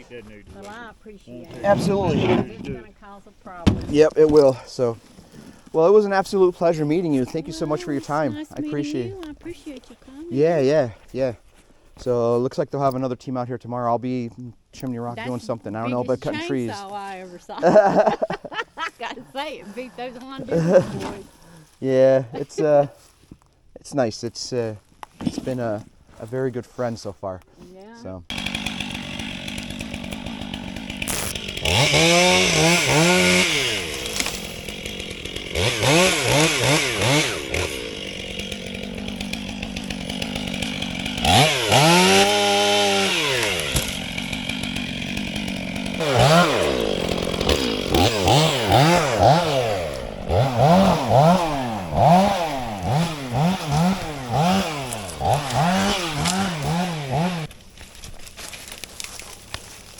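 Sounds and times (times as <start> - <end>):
two-stroke chainsaw revving: 0.6 - 9.8, 15.2 - 18.2, 19.3 - 21.4, 28.3 - 57.5.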